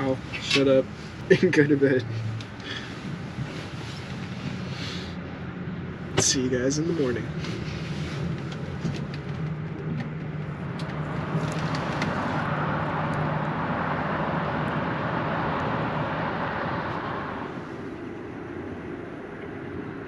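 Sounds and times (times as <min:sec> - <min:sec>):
steady low traffic hum: 0:00.0 - 0:20.0
vehicle passing by: 0:10.4 - 0:18.0.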